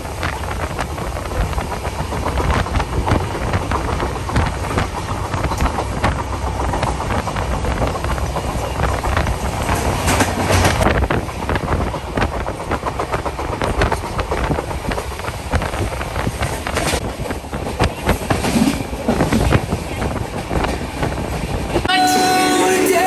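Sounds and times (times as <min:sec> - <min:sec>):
wheels clicking over track: 0:00.0 - 0:21.9
train rumble and rush: 0:00.0 - 0:23.0.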